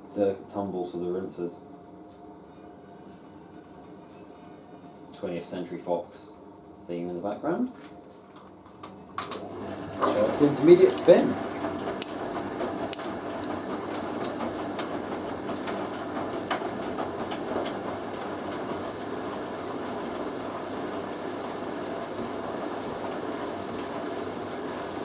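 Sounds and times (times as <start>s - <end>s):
washing machine spinning: 9.0s - 25.0s.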